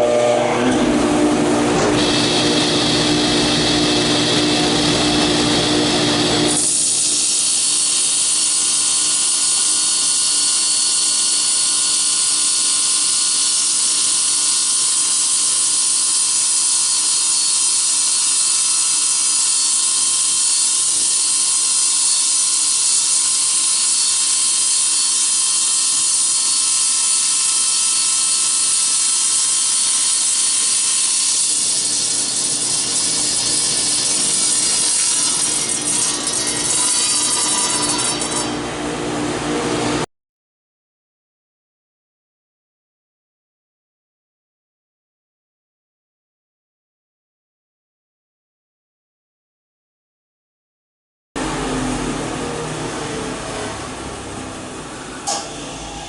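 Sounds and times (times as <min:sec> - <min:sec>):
table saw cutting metal: 0:00.0 - 0:40.1, 0:51.4 - 0:56.0.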